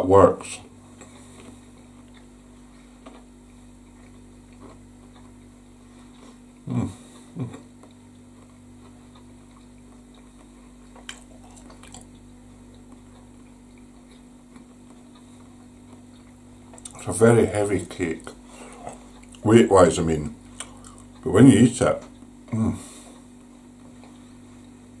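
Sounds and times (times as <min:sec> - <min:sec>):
steady low hum: 0:00.0 - 0:25.0
person chewing: 0:00.8 - 0:17.1, 0:17.8 - 0:19.5, 0:20.4 - 0:21.2, 0:22.1 - 0:24.9.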